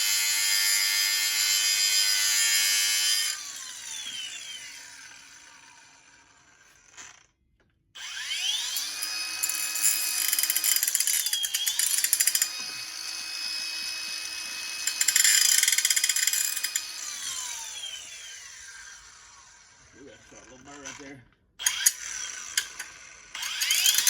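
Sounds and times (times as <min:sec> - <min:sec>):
rotary tool whining: 0:00.0 - 0:07.3, 0:08.0 - 0:24.0
grinding metal: 0:08.3 - 0:18.6, 0:21.6 - 0:24.0.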